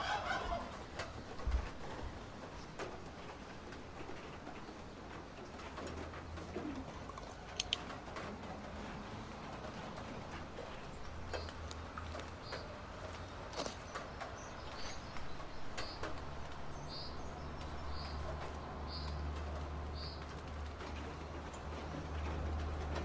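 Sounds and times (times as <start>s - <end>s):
sharp clicks: 7.0s - 8.0s
bird chirping: 10.2s - 20.6s.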